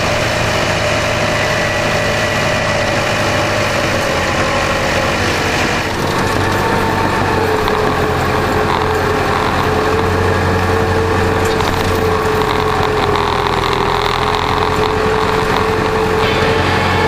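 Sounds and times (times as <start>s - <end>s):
steady whine: 0.0s - 17.0s
tractor diesel engine running: 0.0s - 17.0s.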